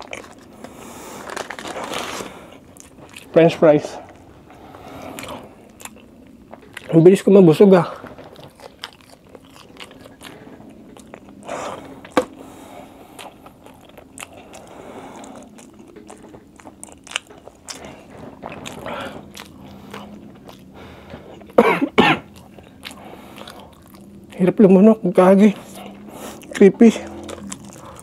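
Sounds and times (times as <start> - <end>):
chewing with wet mouth clicks: 2.6 - 3.3, 5.0 - 7.0, 8.1 - 12.4, 13.0 - 21.6, 22.2 - 24.5, 25.5 - 28.0.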